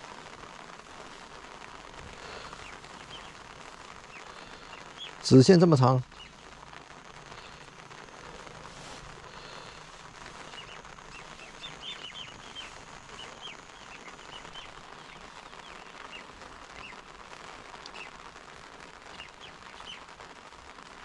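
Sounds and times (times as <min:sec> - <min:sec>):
steady outdoor hiss: 0:00.0 - 0:21.0
small bird chirping: 0:02.5 - 0:03.4, 0:04.0 - 0:05.4, 0:06.1 - 0:06.4, 0:10.4 - 0:17.1, 0:17.8 - 0:18.2, 0:19.1 - 0:20.1.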